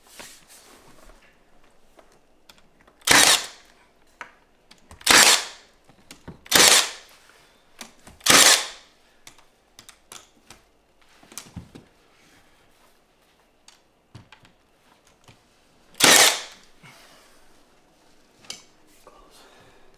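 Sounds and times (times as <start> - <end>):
nail gun shots: 3.0 - 3.6, 5.0 - 5.6, 6.5 - 7.0, 8.2 - 8.8, 16.0 - 16.6.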